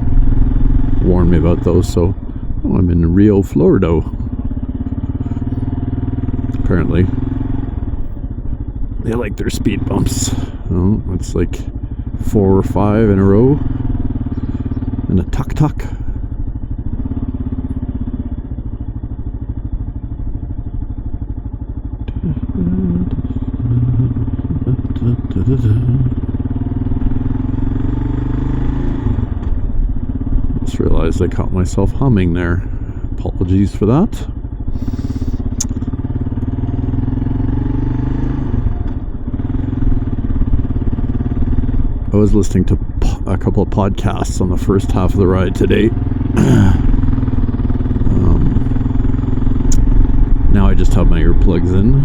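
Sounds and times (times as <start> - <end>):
motorcycle engine running: 0.0 - 52.0
person humming: 22.1 - 26.3, 34.8 - 35.7, 46.4 - 46.9, 48.1 - 48.6.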